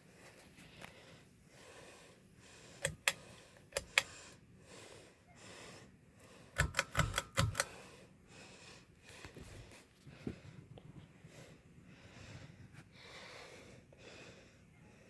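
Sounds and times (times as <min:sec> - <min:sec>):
ceiling fan running: 0:00.0 - 0:15.0
ceiling fan pull-chain clicks: 0:02.8 - 0:04.1, 0:06.3 - 0:07.8.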